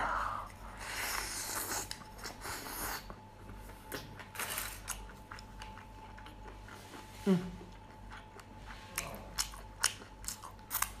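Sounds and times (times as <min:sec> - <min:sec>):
person chewing with wet smacks: 0:01.1 - 0:11.0.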